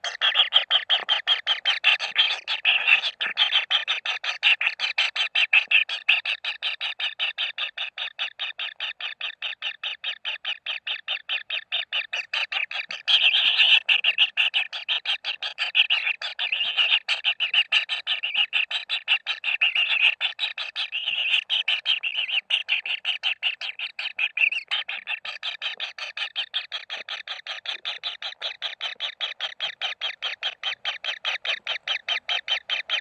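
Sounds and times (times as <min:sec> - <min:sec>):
chicks begging with raspy calls: 0:18.0 - 0:33.0.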